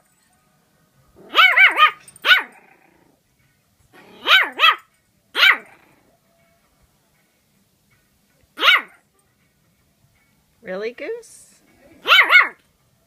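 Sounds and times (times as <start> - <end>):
dog barking: 1.2 - 2.6, 4.0 - 5.8, 8.6 - 9.0, 11.8 - 12.6.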